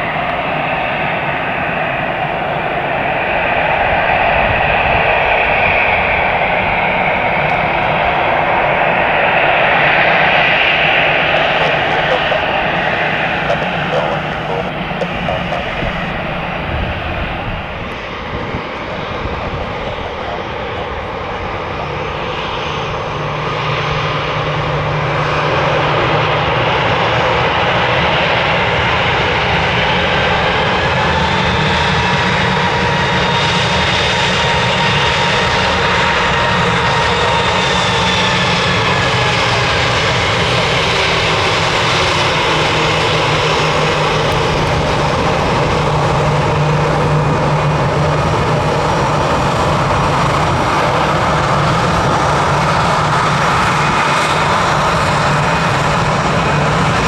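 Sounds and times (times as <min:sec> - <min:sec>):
thin engine whine: 0:00.0 - 0:20.3
jet engines running loud: 0:00.0 - 0:57.0.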